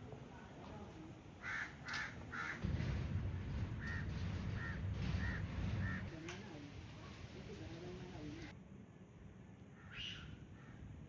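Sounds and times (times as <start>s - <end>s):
crow cawing: 1.4s - 2.6s.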